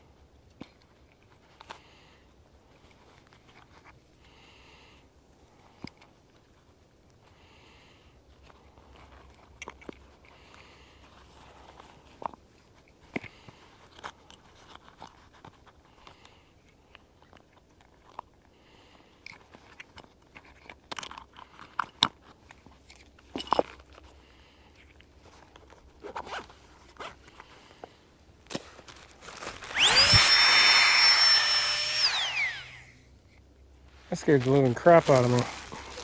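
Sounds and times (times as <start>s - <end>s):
camping gear rustling: 28.5s - 29.8s, 34.4s - 36.0s
small electric motor whirring: 29.6s - 32.9s.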